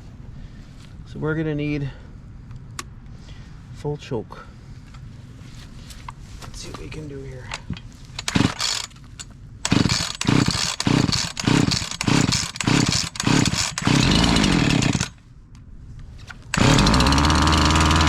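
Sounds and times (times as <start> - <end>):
chainsaw engine running: 8.2 - 8.9, 9.6 - 15.2, 16.6 - 18.0
chainsaw pull-start pulses: 8.2 - 8.9, 9.6 - 15.2, 16.5 - 18.0.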